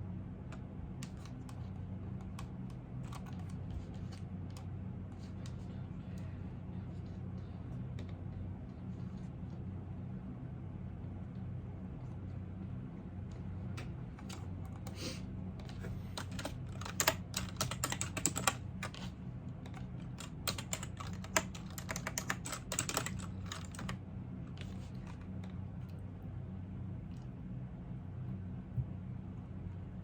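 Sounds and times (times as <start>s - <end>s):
steady low hum: 0.0s - 30.0s
computer keyboard typing: 1.0s - 5.6s, 14.1s - 15.0s, 15.6s - 24.0s, 24.6s - 25.6s.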